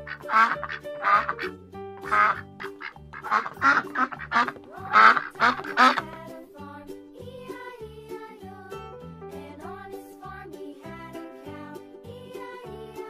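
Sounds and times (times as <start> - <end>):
duck quacking: 0.0 - 6.2
children's music with bass beat: 0.0 - 13.0.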